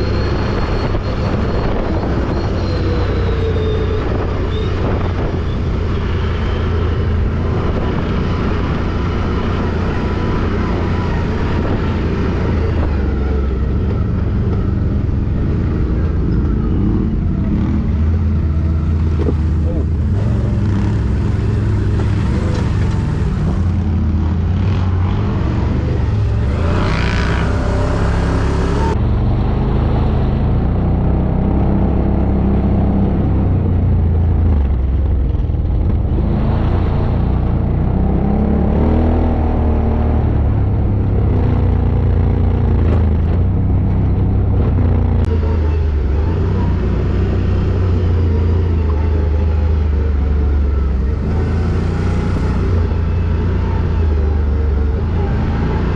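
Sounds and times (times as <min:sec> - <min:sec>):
atv engine droning: 0:00.0 - 0:55.9.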